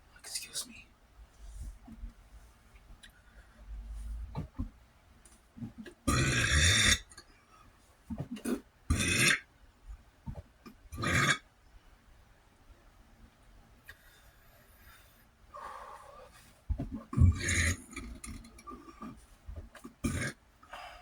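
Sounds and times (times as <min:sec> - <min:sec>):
person burping loudly: 0:06.1 - 0:07.1, 0:11.0 - 0:11.4, 0:17.1 - 0:18.4, 0:20.0 - 0:20.4.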